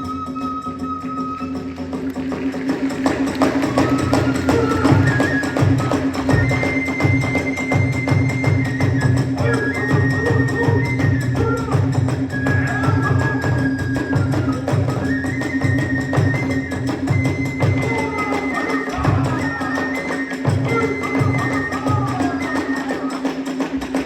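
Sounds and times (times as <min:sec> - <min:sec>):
bamboo flute long notes: 0:00.0 - 0:23.8
rapid hand cymbals clatter: 0:01.7 - 0:07.8.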